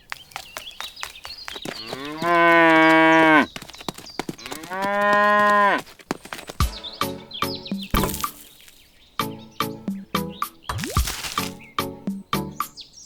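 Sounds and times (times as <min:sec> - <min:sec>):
cow mooing: 0:01.7 - 0:03.6, 0:04.4 - 0:05.9.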